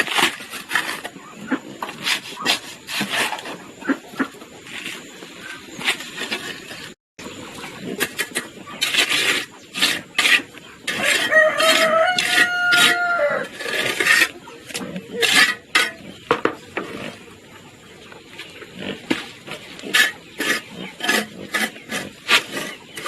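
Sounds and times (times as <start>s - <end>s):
rough scraping strokes: 0.0s - 7.0s, 7.6s - 17.3s, 18.7s - 23.0s
rooster crowing: 11.0s - 13.5s.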